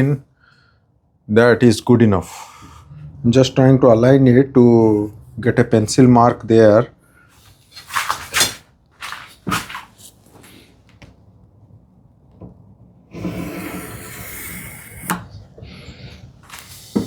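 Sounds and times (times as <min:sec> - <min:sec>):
wood scraping on wood: 0:13.2 - 0:17.0.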